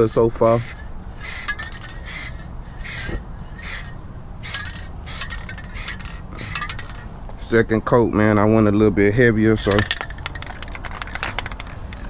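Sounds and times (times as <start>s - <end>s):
steady low rumble: 0.0s - 7.8s
spray paint can hissing: 0.4s - 7.1s.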